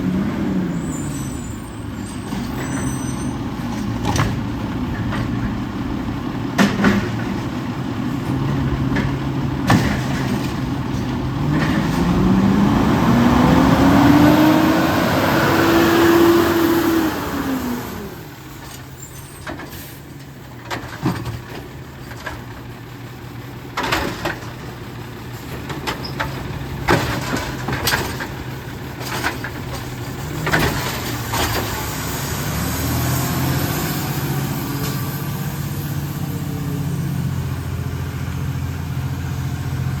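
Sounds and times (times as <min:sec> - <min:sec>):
garbage truck diesel engine revving: 0:00.0 - 0:18.9, 0:21.4 - 0:40.0
metal clanks and knocks: 0:02.1 - 0:12.4, 0:18.6 - 0:22.7, 0:23.7 - 0:32.0.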